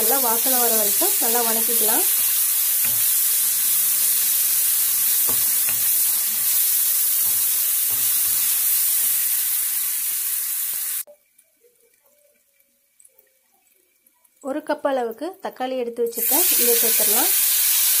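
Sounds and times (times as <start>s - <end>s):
food sizzling in hot oil: 0.0s - 15.2s, 15.9s - 18.0s
wooden spatula knocking pan: 2.1s - 3.8s, 4.9s - 9.2s.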